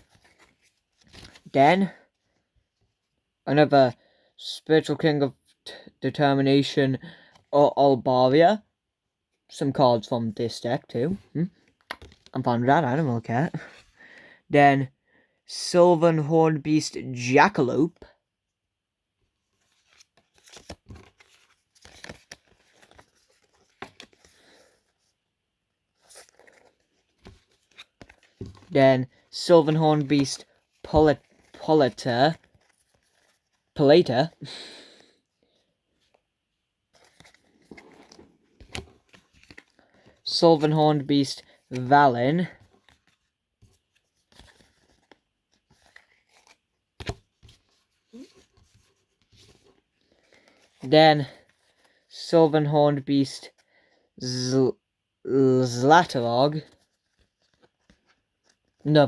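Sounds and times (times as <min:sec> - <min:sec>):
trading cards rustling and clicking: 0:11.6 - 0:12.4, 0:19.6 - 0:25.0, 0:26.0 - 0:34.3, 0:36.9 - 0:50.8.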